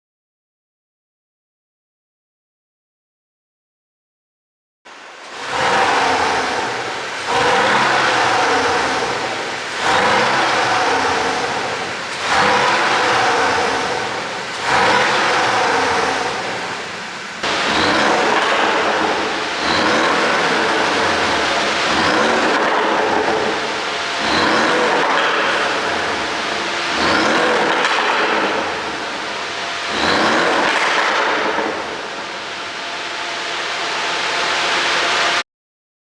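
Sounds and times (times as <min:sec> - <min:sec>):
car engine revving with exhaust pops: 0:04.9 - 0:33.0.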